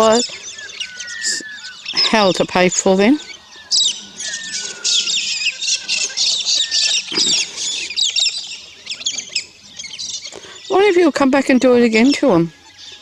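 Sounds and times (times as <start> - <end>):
birds chirping and squawking: 0.0 - 13.0
short falling whistles: 3.7 - 8.0.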